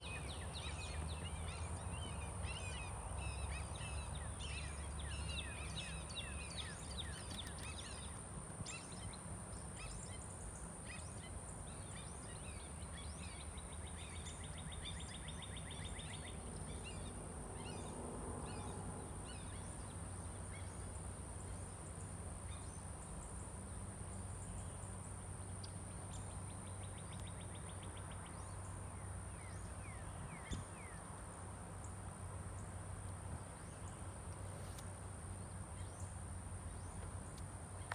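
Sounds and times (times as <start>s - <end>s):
songbirds chirping and singing: 0.0s - 17.9s.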